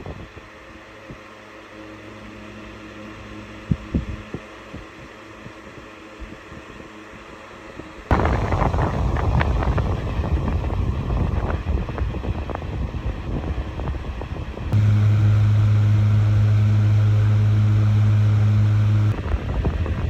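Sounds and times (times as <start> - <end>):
loud low hum: 8.1 - 11.7, 14.7 - 20.0
fan air buffeting microphone: 8.1 - 20.0.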